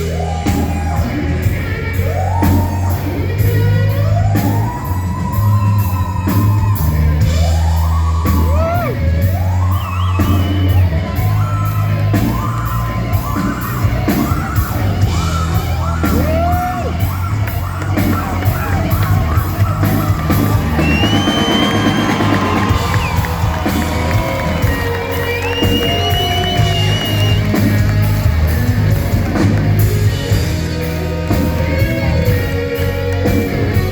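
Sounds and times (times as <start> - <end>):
voices yelling and whooping: 0.0 - 29.2
rock band playing: 0.0 - 33.9
steady bass notes: 0.0 - 33.9
regular drum beat: 13.2 - 33.9.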